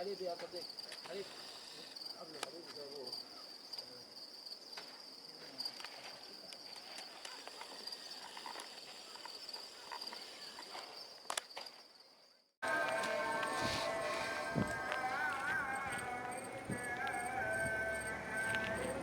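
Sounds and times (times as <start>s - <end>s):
insects trilling: 0.0s - 19.0s
outdoor ambience: 0.0s - 19.0s
music: 12.6s - 19.0s.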